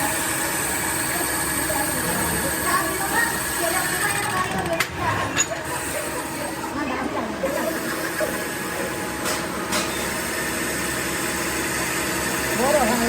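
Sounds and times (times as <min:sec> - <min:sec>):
workshop machinery running: 0:00.0 - 0:13.0.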